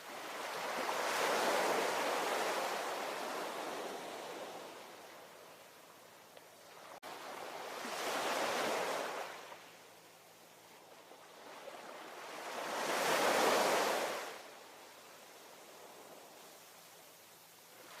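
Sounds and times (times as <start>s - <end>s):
waves breaking: 0.0s - 5.1s, 6.6s - 9.7s
low steady surf hiss: 0.0s - 18.0s.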